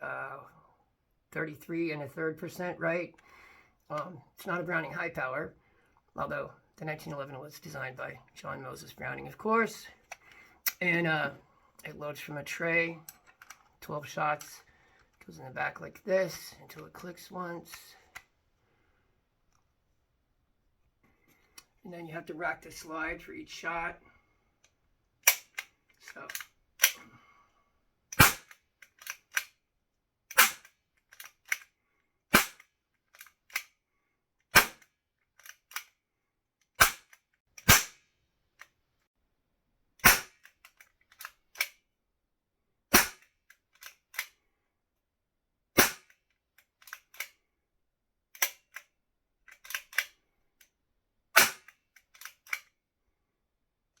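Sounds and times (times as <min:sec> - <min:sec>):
cap pistol cracks: 0:25.2 - 0:25.7, 0:26.3 - 0:27.0, 0:28.1 - 0:29.5, 0:30.3 - 0:31.6, 0:32.3 - 0:33.7, 0:34.5 - 0:35.8, 0:36.8 - 0:38.0, 0:40.0 - 0:40.5, 0:42.9 - 0:44.3, 0:45.8 - 0:46.2, 0:51.4 - 0:52.6
pistol slide clicking: 0:25.2 - 0:25.7, 0:26.3 - 0:27.0, 0:28.1 - 0:29.5, 0:30.3 - 0:31.7, 0:32.3 - 0:33.7, 0:34.6 - 0:36.0, 0:40.0 - 0:41.8, 0:42.9 - 0:44.4, 0:45.8 - 0:47.4, 0:48.3 - 0:48.9, 0:49.5 - 0:50.7, 0:51.4 - 0:52.8.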